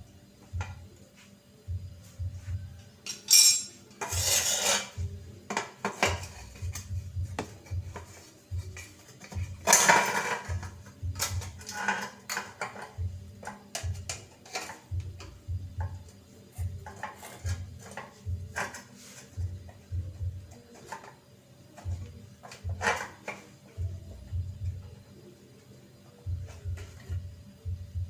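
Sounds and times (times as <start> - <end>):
metal tools clinking and knocking: 3.0 - 4.8, 9.2 - 13.0.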